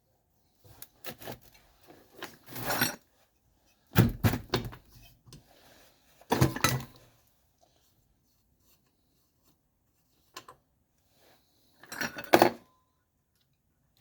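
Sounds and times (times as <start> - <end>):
tools clattering on a workbench: 6.3 - 7.0, 11.8 - 12.7.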